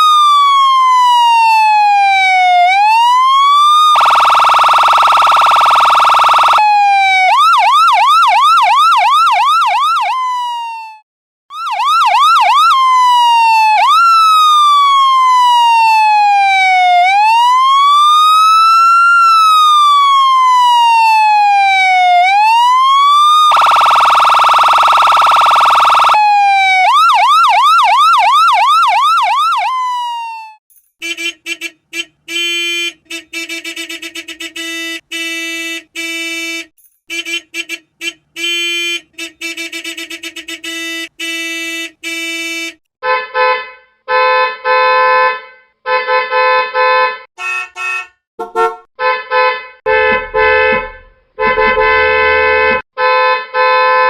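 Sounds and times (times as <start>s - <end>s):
siren wailing and yelping: 0.0s - 30.6s
steady horn blare: 31.0s - 54.0s
short horn honks: 47.4s - 54.0s.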